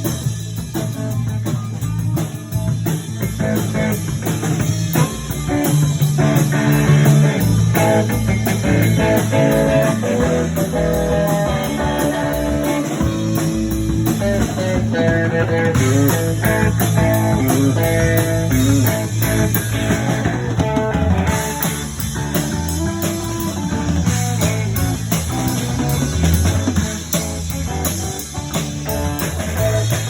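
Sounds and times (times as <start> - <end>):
bass and drums: 0.0 - 30.0
guitar lead lines: 0.0 - 30.0.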